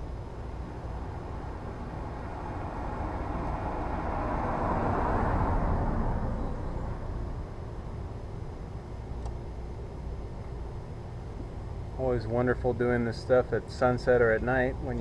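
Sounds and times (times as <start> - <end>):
low steady rumble: 0.0 - 15.0
vehicle passing by: 1.4 - 7.8.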